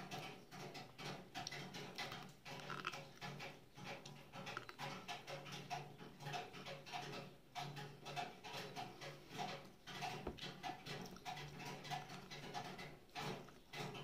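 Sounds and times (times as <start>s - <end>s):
chewing corn on the cob: 0.0s - 14.0s.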